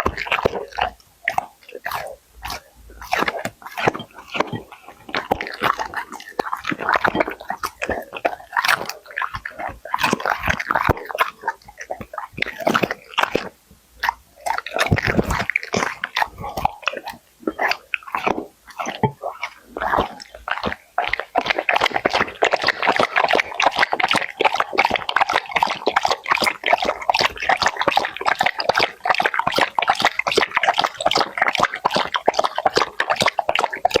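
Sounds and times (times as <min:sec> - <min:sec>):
dog chewing and smacking: 0:00.0 - 0:34.0.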